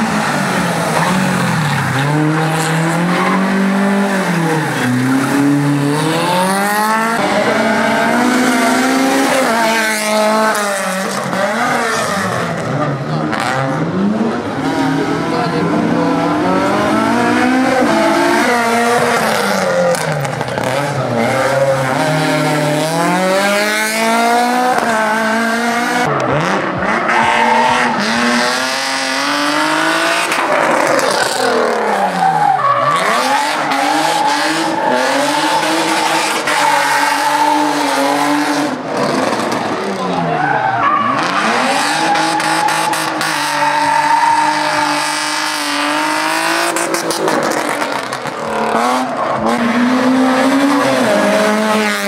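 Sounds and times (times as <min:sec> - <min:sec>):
car engine revving hard: 0:00.0 - 0:40.2, 0:41.0 - 0:52.0.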